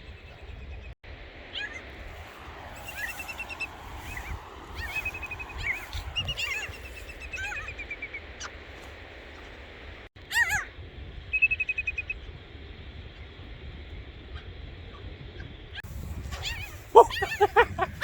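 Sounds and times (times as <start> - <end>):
wind rumbling on microphone: 0.0 - 18.0
birds giving alarm calls: 16.5 - 18.0.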